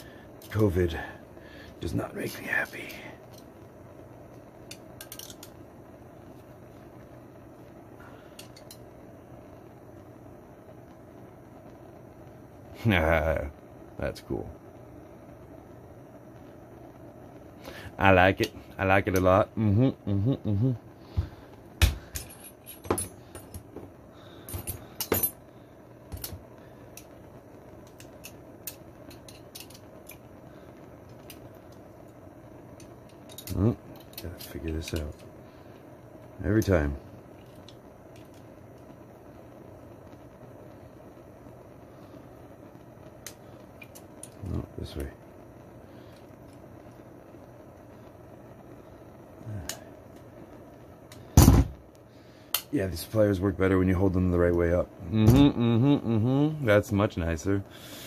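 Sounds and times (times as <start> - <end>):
steady low hum: 0.0 - 58.0
metal tools clinking: 5.0 - 5.5, 22.1 - 23.6, 24.5 - 25.4.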